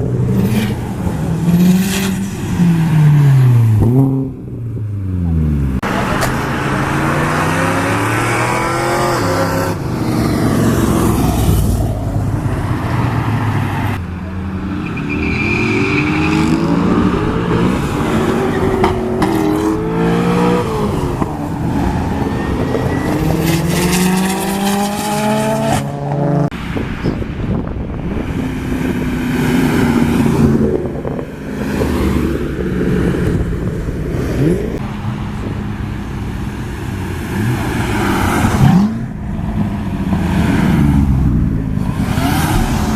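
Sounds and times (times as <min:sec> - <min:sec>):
car engines revving and passing: 0:00.0 - 0:42.9.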